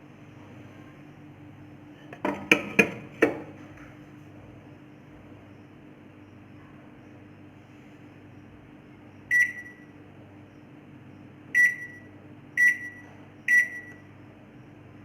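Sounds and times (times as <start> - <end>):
steady low hum: 2.9 - 15.0
microwave oven beeping: 8.3 - 15.0.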